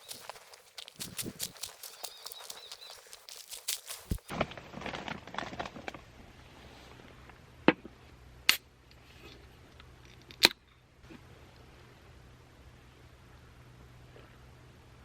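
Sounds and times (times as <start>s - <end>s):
handling rustling and clicking: 0.0s - 6.0s
faint low hum: 6.0s - 15.0s.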